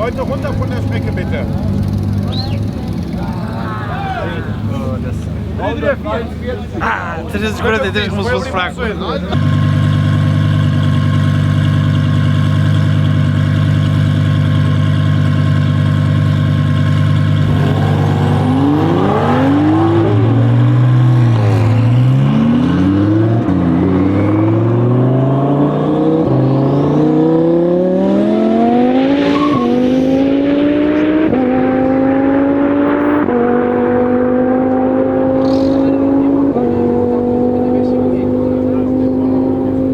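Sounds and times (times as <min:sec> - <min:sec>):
sports car engine revving: 0:09.3 - 0:39.9.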